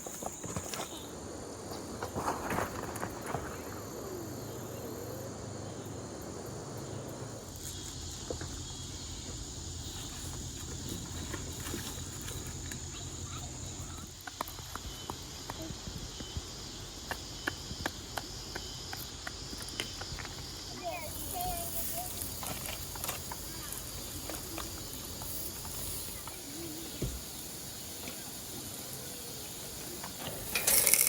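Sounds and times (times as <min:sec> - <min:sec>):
high-pitched insect chorus: 0:00.0 - 0:31.0.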